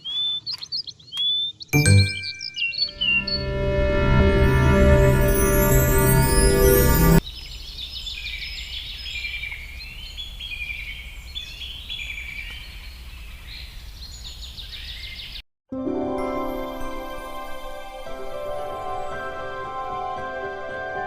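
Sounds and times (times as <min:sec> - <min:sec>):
birds chirping: 0:00.0 - 0:03.6
music: 0:01.8 - 0:02.3, 0:02.9 - 0:07.2, 0:15.7 - 0:21.0.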